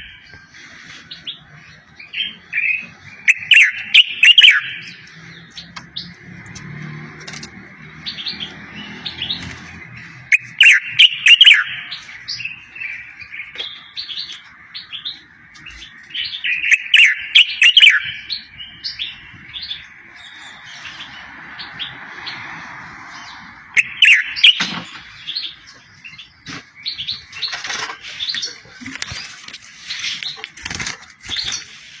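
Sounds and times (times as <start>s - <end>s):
bird chirps: 0.0s - 6.3s, 7.8s - 32.0s
songbird whistling notes: 2.6s - 5.0s, 16.2s - 19.1s, 23.8s - 24.8s.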